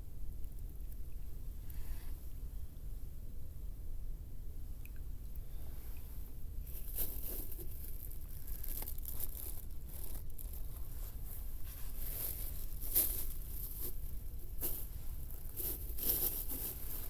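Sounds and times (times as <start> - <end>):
low steady rumble: 0.0 - 17.0
crinkling and rustling: 6.6 - 17.0.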